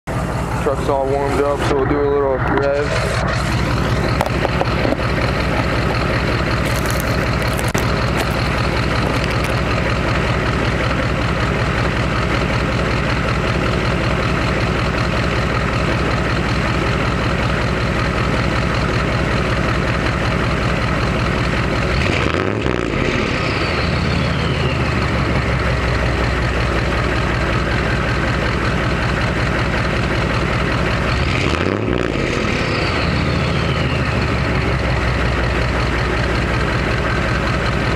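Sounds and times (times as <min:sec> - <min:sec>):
diesel engine idling and revving: 0:00.0 - 0:37.9
high turbo whistle: 0:32.3 - 0:34.6.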